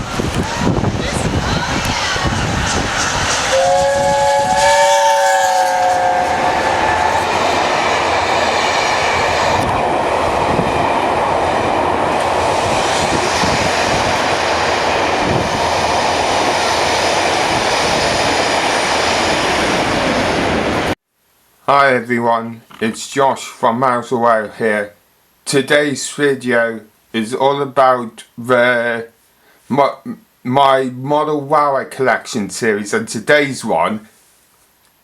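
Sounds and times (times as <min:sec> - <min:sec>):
train running noise: 0:00.0 - 0:21.0
train horn chord: 0:03.5 - 0:07.9.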